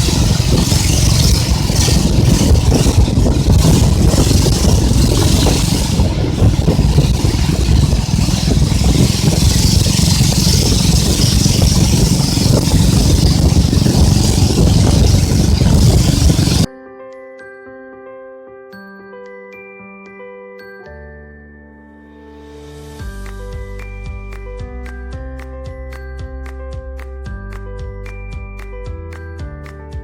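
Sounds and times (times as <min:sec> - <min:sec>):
boat engine running: 0:00.0 - 0:16.7
rushing water: 0:00.0 - 0:16.7.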